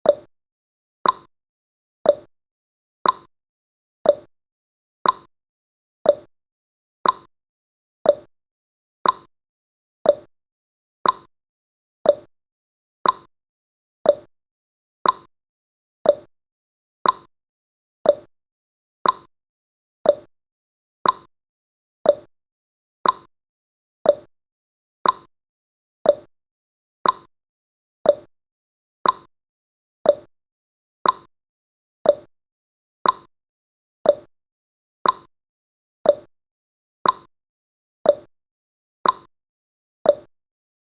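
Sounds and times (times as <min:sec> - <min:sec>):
timer ticking: 0:00.0 - 0:00.3, 0:01.0 - 0:01.3, 0:02.0 - 0:02.3, 0:03.0 - 0:03.3, 0:04.0 - 0:04.3, 0:05.0 - 0:05.3, 0:06.0 - 0:06.3, 0:07.0 - 0:07.3, 0:08.0 - 0:08.3, 0:09.0 - 0:09.3, 0:10.0 - 0:10.3, 0:11.0 - 0:11.3, 0:12.0 - 0:12.3, 0:13.0 - 0:13.3, 0:14.0 - 0:14.3, 0:15.0 - 0:15.3, 0:16.0 - 0:16.3, 0:17.0 - 0:17.3, 0:18.0 - 0:18.3, 0:19.0 - 0:19.3, 0:20.0 - 0:20.3, 0:21.0 - 0:21.3, 0:22.0 - 0:22.3, 0:23.0 - 0:23.3, 0:24.0 - 0:24.3, 0:25.0 - 0:25.3, 0:26.0 - 0:26.3, 0:27.0 - 0:27.3, 0:28.0 - 0:28.3, 0:29.0 - 0:29.3, 0:30.0 - 0:30.3, 0:31.0 - 0:31.3, 0:32.0 - 0:32.3, 0:33.0 - 0:33.3, 0:34.0 - 0:34.3, 0:35.0 - 0:35.3, 0:36.0 - 0:36.3, 0:37.0 - 0:37.3, 0:38.1 - 0:38.3, 0:39.0 - 0:39.3, 0:40.1 - 0:40.3.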